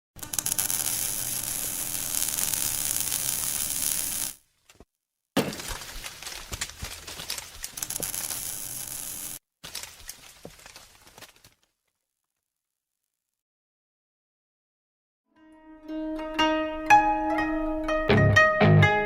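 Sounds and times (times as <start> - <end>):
crunching and scraping on snow: 5.4 - 11.7.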